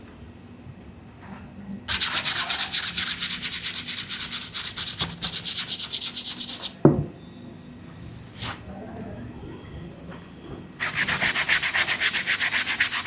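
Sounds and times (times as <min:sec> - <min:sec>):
brush scrubbing a sneaker: 0:01.9 - 0:06.8, 0:10.8 - 0:13.0.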